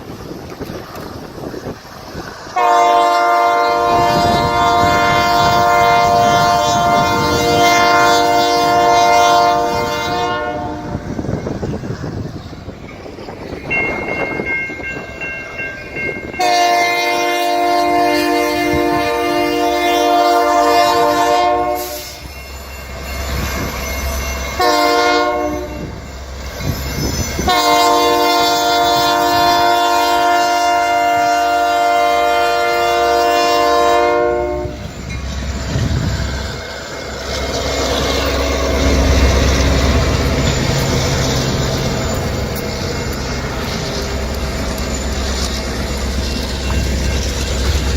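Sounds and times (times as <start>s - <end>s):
train rumble: 0.0s - 47.9s
locomotive air horn: 2.6s - 11.1s, 16.4s - 22.3s, 24.5s - 26.0s, 27.4s - 34.9s.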